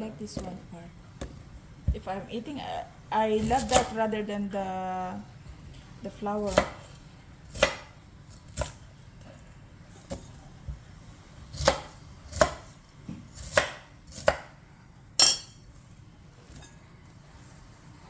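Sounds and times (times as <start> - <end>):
knife chopping on cutting board: 3.4 - 4.0, 6.4 - 8.8, 11.5 - 14.6.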